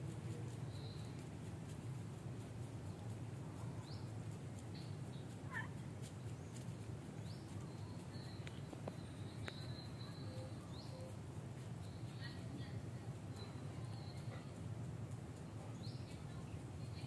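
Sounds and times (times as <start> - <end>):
faint clicks: 0.0 - 12.2, 13.2 - 16.3
low background hum: 0.0 - 17.0.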